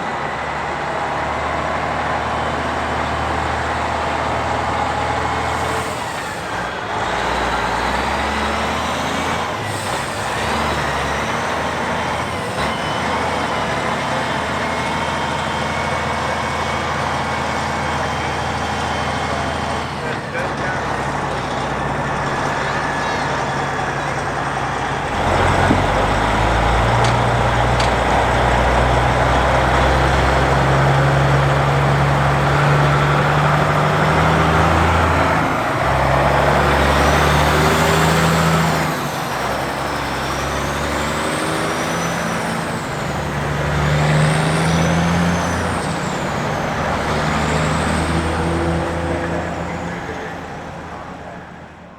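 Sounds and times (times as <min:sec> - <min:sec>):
diesel truck engine shifting gears: 0:00.0 - 0:51.9.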